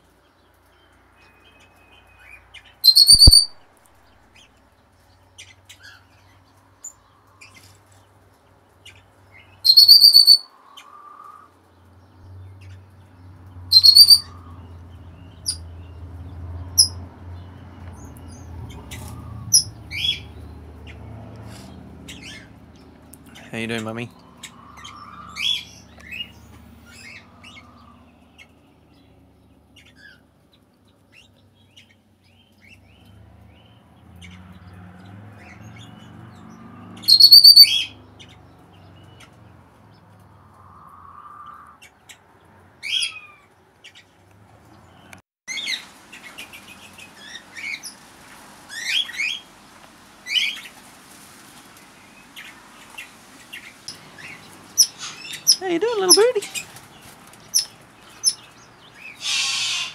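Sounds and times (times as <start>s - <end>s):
birds chirping: 0.0s - 59.9s
high whistled bird call: 2.8s - 3.6s, 9.6s - 10.5s, 13.7s - 14.3s, 37.0s - 37.9s, 59.1s - 59.9s.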